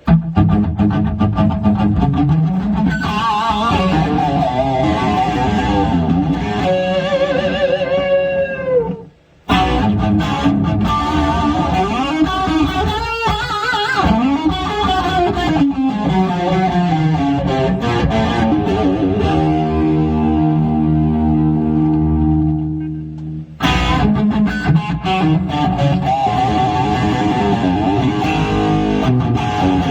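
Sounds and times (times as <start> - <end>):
electric guitar chord ringing: 0.0 - 29.9
electric guitar lead with bends: 0.0 - 29.9.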